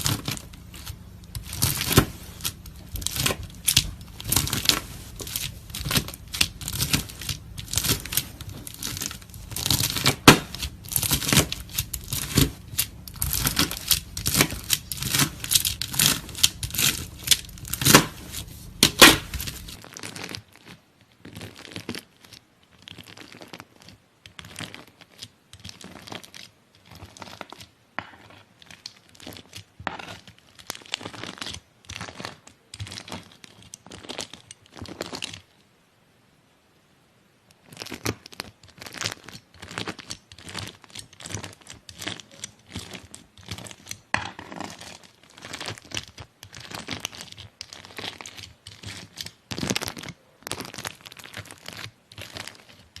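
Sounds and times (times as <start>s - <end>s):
knife cutting crunchy slime: 0.0s - 19.8s, 38.9s - 52.8s.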